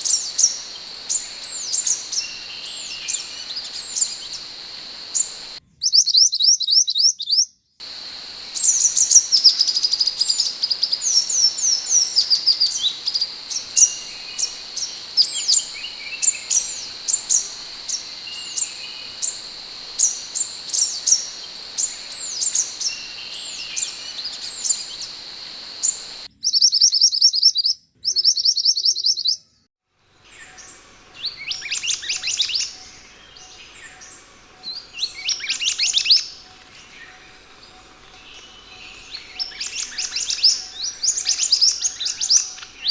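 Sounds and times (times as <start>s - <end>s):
bird calling high whistled notes: 0.0s - 5.6s, 7.8s - 26.3s
steady high-pitched drone: 0.0s - 5.6s, 7.8s - 26.3s.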